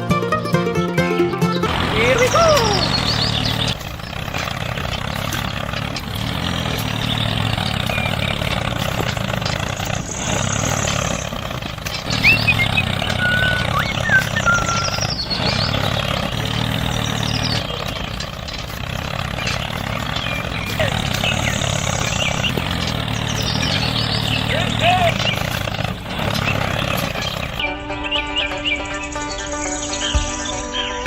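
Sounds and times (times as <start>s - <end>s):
small engine running: 0.0s - 31.0s.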